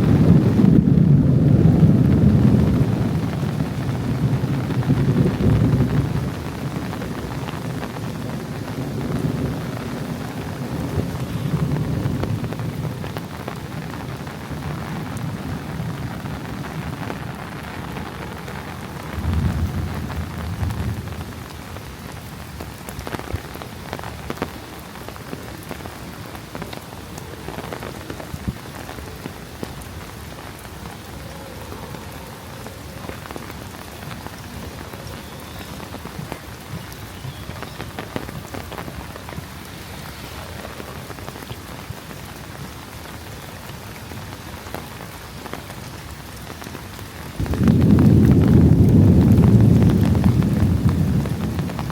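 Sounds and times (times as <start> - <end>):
thunder rumbling: 0.0 - 42.0, 47.4 - 51.9
heavy rain: 0.0 - 51.9
close raindrop taps: 16.4 - 31.1, 32.7 - 39.8, 40.6 - 51.9.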